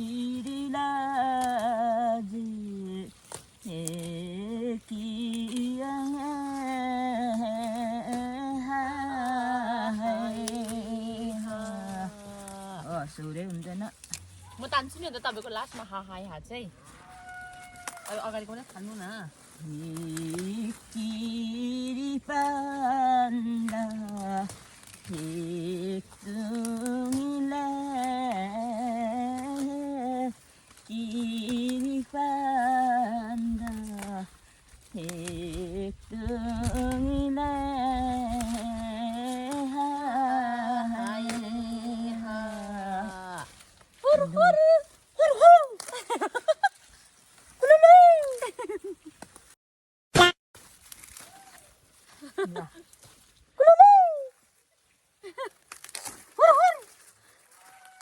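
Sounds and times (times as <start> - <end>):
woman singing with vibrato: 0.0 - 13.0, 19.6 - 45.8.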